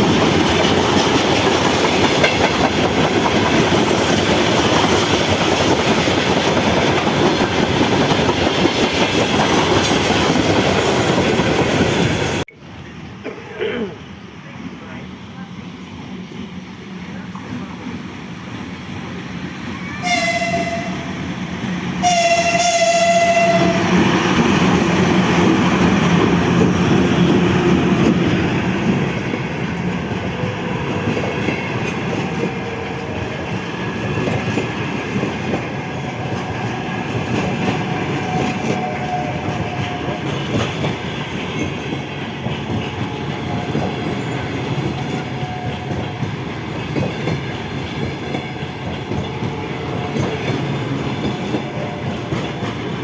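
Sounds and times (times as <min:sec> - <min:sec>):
train rail noise: 0:00.0 - 0:53.0
train horn blast: 0:20.0 - 0:21.2, 0:22.0 - 0:24.0.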